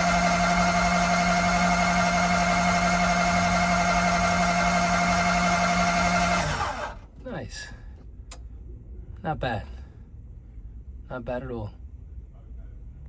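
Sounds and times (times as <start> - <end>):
engine starter cranking whir: 0.0 - 7.1.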